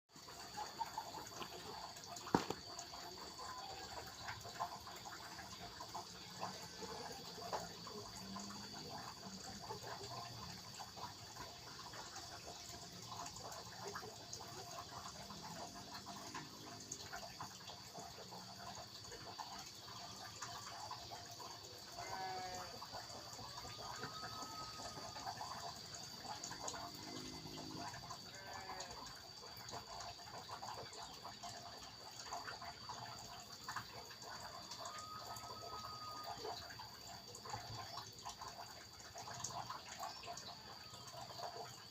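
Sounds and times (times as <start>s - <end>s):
constant high-pitched tone: 0.1s - 41.9s
flowing water: 0.1s - 41.9s.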